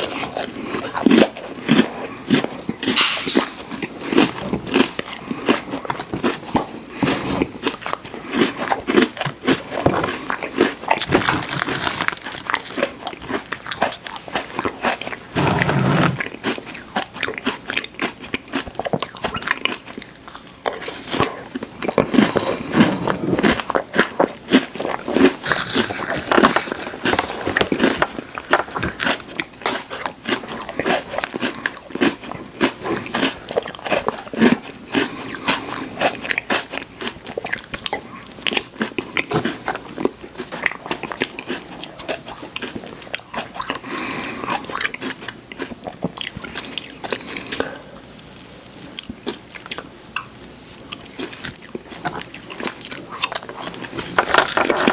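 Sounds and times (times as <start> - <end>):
chewing crisp cookies: 0.0 - 54.9.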